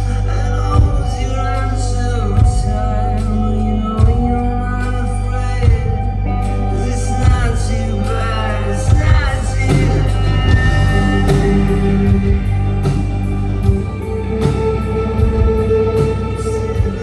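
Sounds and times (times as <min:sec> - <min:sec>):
person singing: 0:00.0 - 0:17.0
live rock band playing: 0:02.4 - 0:17.0.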